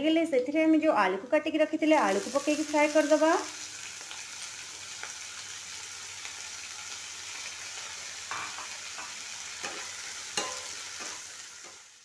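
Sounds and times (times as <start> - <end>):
potatoes sizzling in oil: 1.4 - 12.0.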